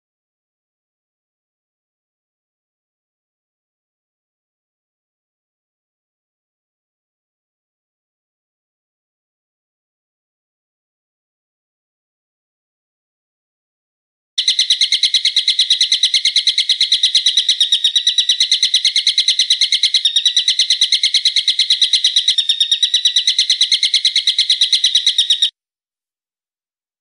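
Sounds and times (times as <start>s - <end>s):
bird trill of sharp high notes: 14.4s - 25.5s.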